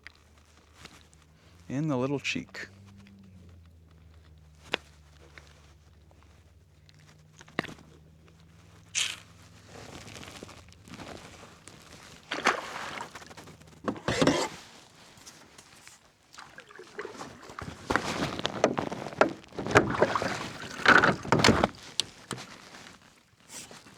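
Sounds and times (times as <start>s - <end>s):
rustling scraping and knocking in kayak: 2.7s - 23.9s.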